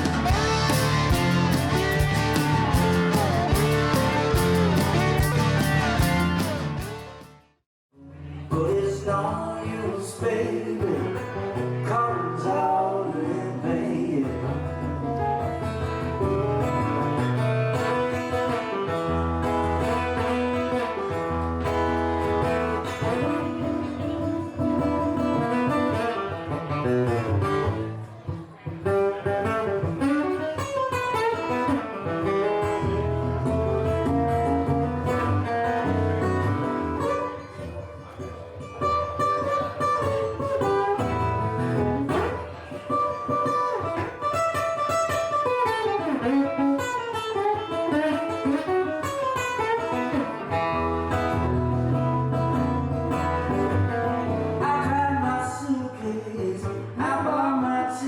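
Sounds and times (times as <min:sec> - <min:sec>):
blues guitar playing single-note runs: 0:00.0 - 0:07.3
steady low backing: 0:00.0 - 0:07.3.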